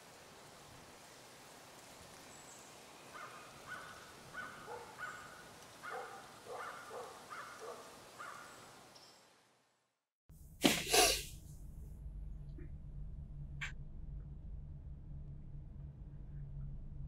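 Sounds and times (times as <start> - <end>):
faint outdoor hiss: 0.0 - 9.8
bird calling: 3.0 - 9.1.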